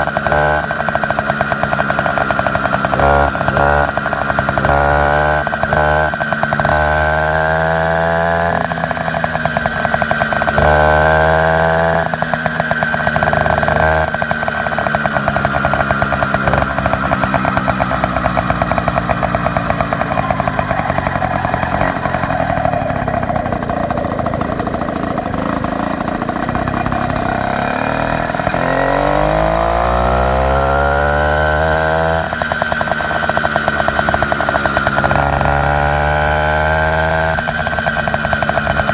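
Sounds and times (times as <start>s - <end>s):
small engine revving: 0.0s - 38.9s.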